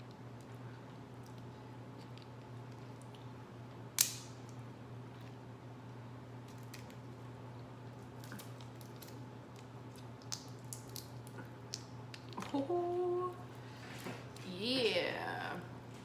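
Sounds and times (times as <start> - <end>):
shell cracking: 4.0 - 4.6, 8.2 - 12.4.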